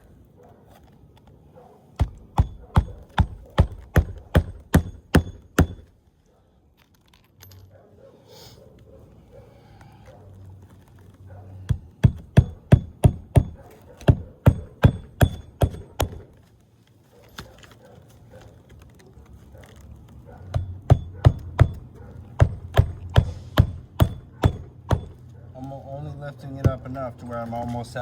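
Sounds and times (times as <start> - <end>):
hammer driving nails: 2.0 - 6.0, 11.7 - 16.4, 20.5 - 25.2.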